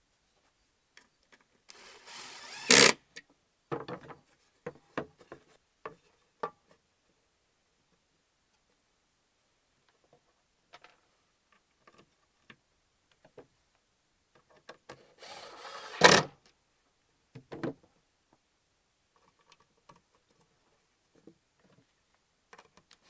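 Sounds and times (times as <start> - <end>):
power drill burst: 1.7 - 3.0, 15.2 - 16.2.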